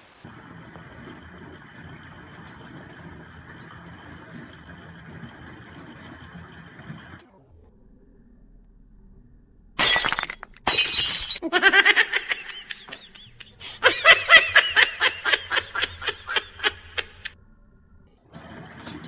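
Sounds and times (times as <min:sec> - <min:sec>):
object falling and breaking: 0:09.8 - 0:11.4
high-pitched laughter: 0:11.4 - 0:17.4.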